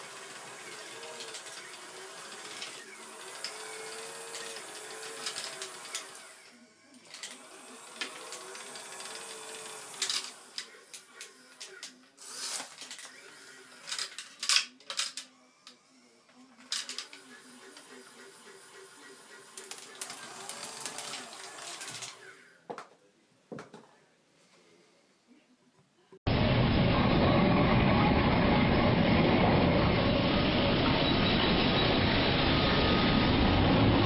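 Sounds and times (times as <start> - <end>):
small electric motors whining: 0.0 - 22.6
clicks and sharp rattles: 0.8 - 6.2, 13.8 - 15.3, 16.6 - 17.9.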